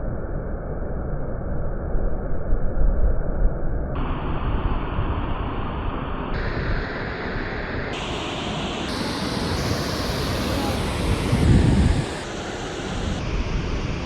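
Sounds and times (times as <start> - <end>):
waterfall rushing: 8.0 - 13.2.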